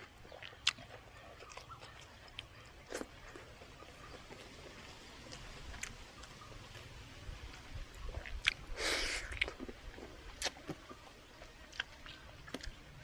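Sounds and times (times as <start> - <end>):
person chewing food: 0.0 - 13.0
wet mouth clicks: 8.2 - 9.7.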